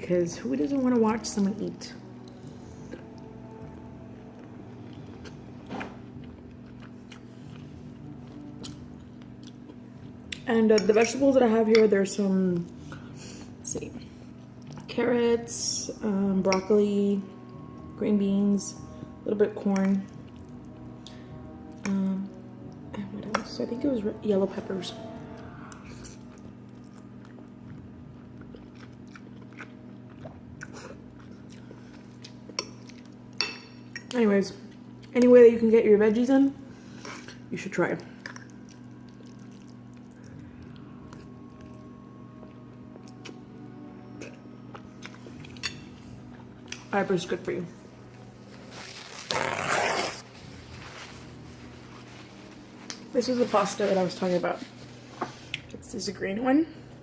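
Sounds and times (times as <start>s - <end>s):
steady low hum: 0.0s - 57.0s
person chewing: 2.2s - 10.4s, 25.4s - 33.2s, 38.2s - 41.9s, 44.2s - 45.6s.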